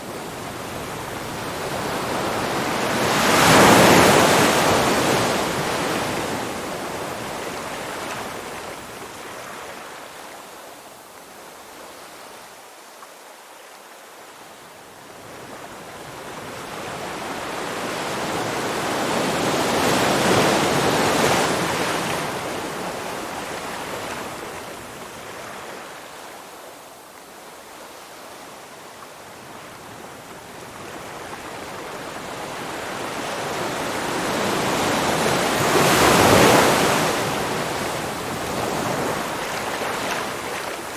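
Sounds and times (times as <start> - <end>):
ocean waves breaking: 0.0 - 8.4, 31.0 - 40.9.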